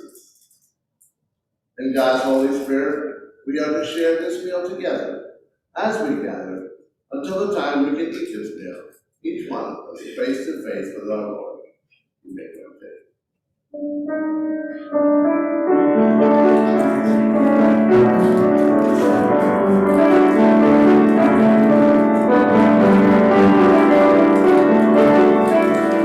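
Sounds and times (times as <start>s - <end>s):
keyboard playing sustained chords: 13.8s - 26.0s.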